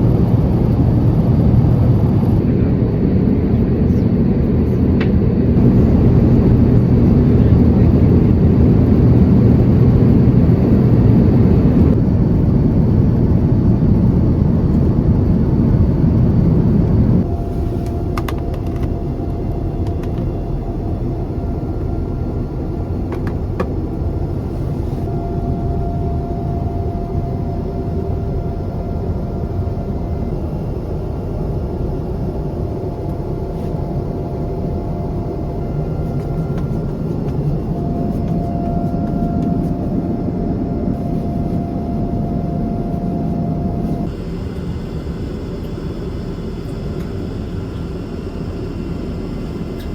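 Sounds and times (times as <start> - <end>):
engine and airflow rumble: 0.0 - 49.9
cabin hum: 15.7 - 49.9
faint steady tone: 37.5 - 49.9.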